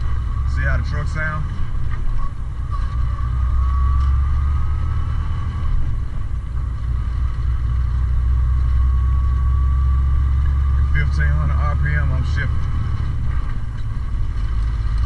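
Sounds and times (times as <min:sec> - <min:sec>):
truck diesel engine rumbling: 0:00.0 - 0:15.0.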